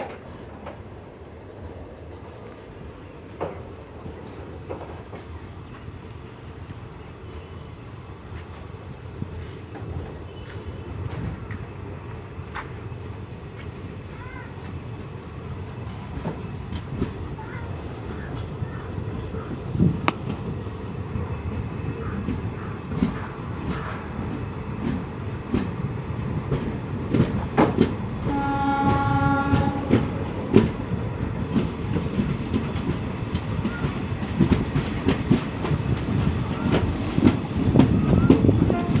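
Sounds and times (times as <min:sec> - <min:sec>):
train rumbling: 0:00.0 - 0:39.0
wheels clacking over rail joints: 0:13.6 - 0:39.0
train horn: 0:28.2 - 0:31.0, 0:38.5 - 0:39.0.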